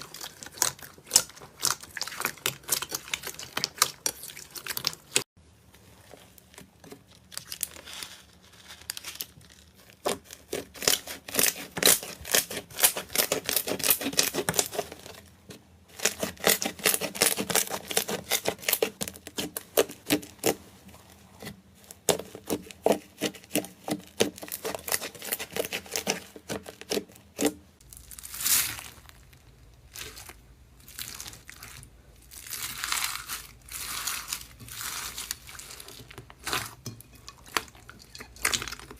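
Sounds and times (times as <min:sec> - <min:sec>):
slime crackling and popping: 0:00.0 - 0:05.3, 0:15.9 - 0:20.6, 0:21.8 - 0:38.9
slime soft crinkling: 0:00.0 - 0:11.6, 0:26.4 - 0:38.9.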